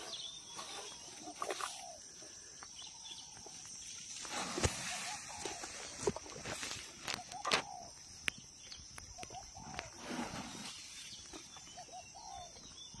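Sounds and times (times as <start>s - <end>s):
rising and falling bird calls: 11.1s - 13.0s.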